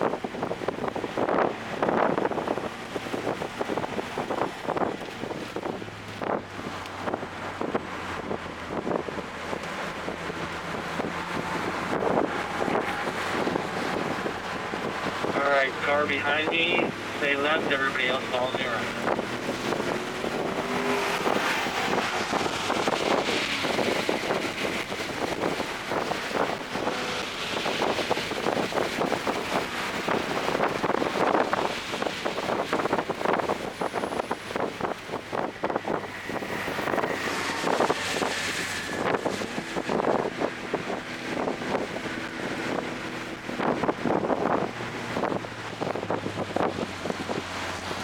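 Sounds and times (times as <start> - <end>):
car engine running at speed: 0.0 - 48.0
wind and road noise: 0.0 - 48.0.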